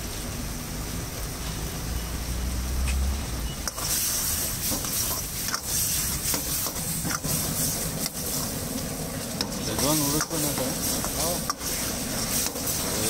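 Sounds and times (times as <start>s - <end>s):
food frying in sauce: 0.0s - 13.0s
gas burner rumble: 0.0s - 13.0s
sauce sizzling loudly: 0.0s - 13.0s
ladle stirring and scraping a pan: 3.6s - 13.0s.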